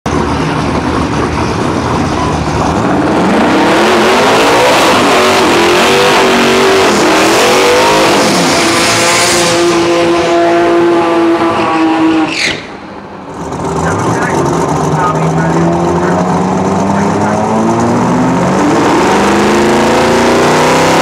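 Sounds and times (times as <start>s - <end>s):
drag car engine revving: 0.1s - 21.0s.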